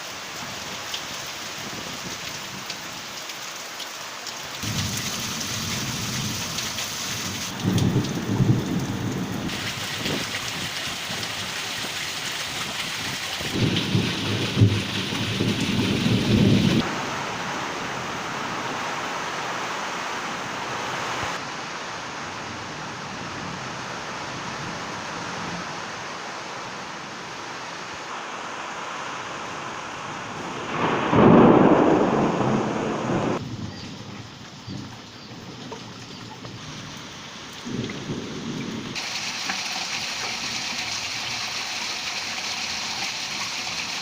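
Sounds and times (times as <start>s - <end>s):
heavy rain falling: 0.0s - 44.0s
thunder rumbling: 4.6s - 11.5s, 13.4s - 17.0s, 30.4s - 34.9s.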